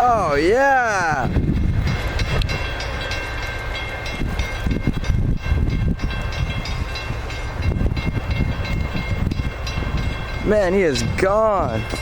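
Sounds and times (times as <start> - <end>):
passenger train rumbling past: 0.0 - 12.0.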